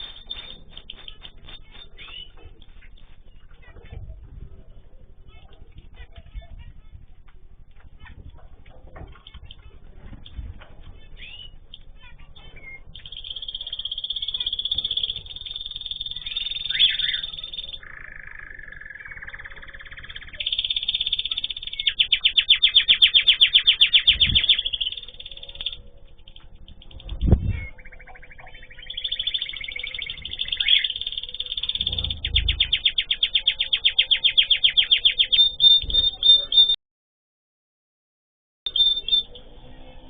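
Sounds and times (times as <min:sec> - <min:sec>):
cage birds singing: 0:00.0 - 0:06.9, 0:07.8 - 0:36.8, 0:38.7 - 0:40.0
dull low thumps: 0:31.8 - 0:32.8.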